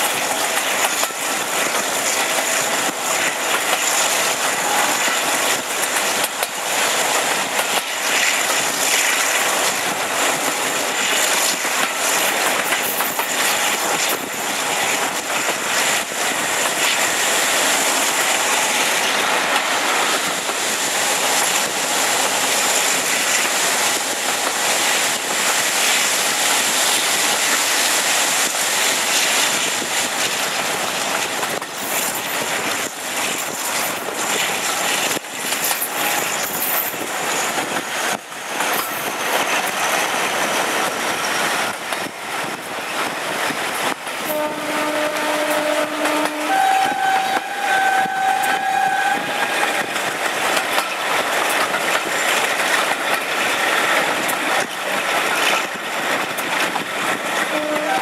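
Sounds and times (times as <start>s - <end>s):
wheels on rails: 0.0s - 28.5s, 29.1s - 58.0s.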